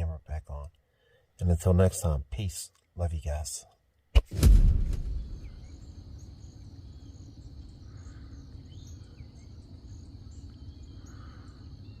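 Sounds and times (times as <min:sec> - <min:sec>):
steady low rumble: 0:04.2 - 0:12.0
night insects chirping: 0:04.9 - 0:12.0.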